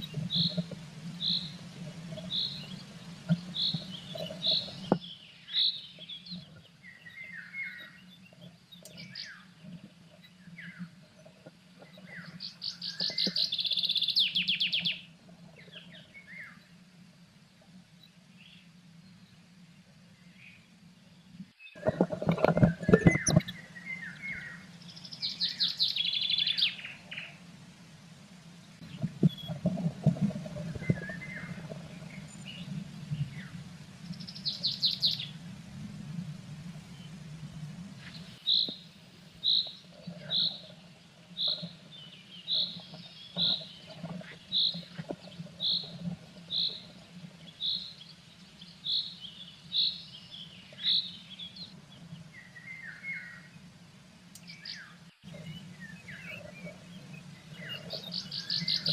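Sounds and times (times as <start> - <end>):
songbird trills and calls: 0.0 - 16.6, 21.6 - 27.4, 28.8 - 29.6, 34.1 - 35.4, 38.0 - 53.6, 54.3 - 58.9.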